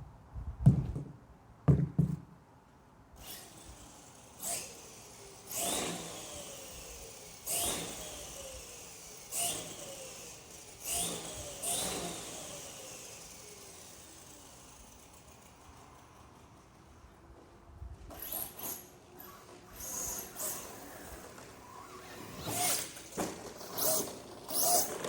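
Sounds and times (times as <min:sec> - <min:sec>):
sharp knocks: 0:00.6 - 0:02.3
electric motor whine: 0:03.2 - 0:14.8.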